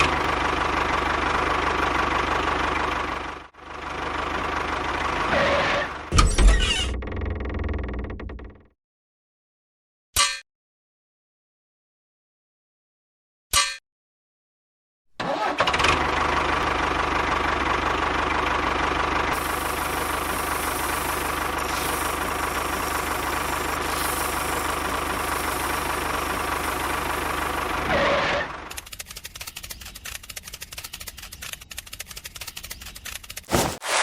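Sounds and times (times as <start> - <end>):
small engine running: 0.0 - 6.1, 15.4 - 33.8.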